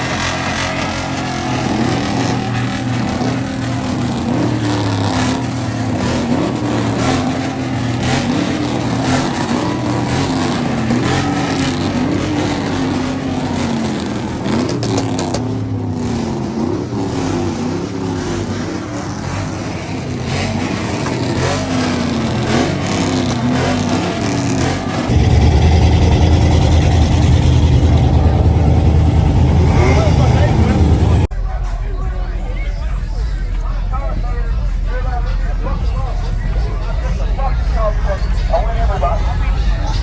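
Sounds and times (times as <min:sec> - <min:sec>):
vehicle engine revving: 0:00.0 - 0:31.4.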